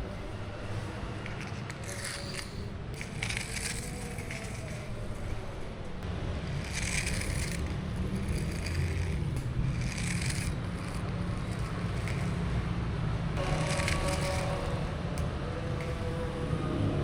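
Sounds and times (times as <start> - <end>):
steady low rumble: 0.0 - 17.0
cat crunching dry food: 1.2 - 5.7, 6.4 - 12.5, 13.4 - 14.8.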